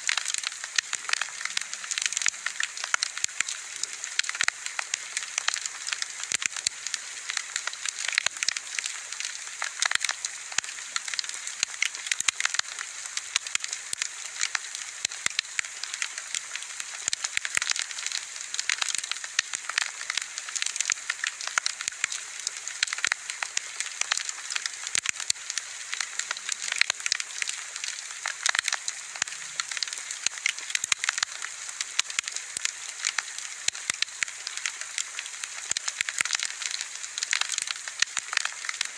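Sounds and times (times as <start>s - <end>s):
wood fire crackling and popping: 0.1s - 38.9s.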